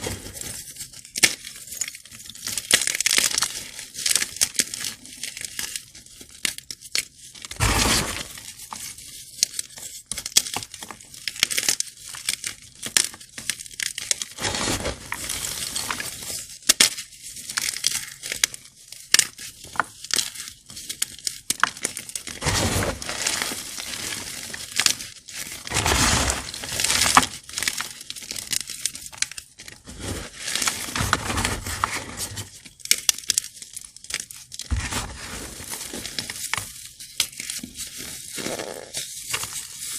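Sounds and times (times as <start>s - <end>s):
chalk crunching bursts: 7.6s - 8.4s, 25.7s - 27.2s
chalk blocks crackling: 20.6s - 33.3s.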